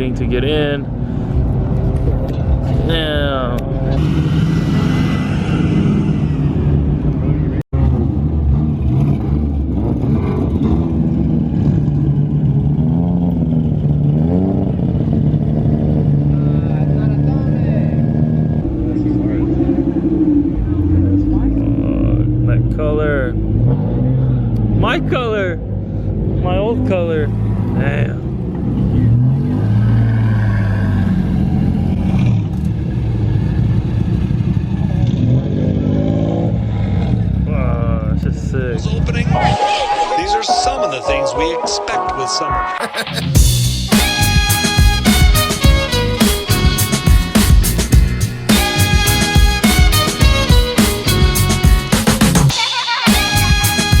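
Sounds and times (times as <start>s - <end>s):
car engine at low revs: 6.0s - 39.2s.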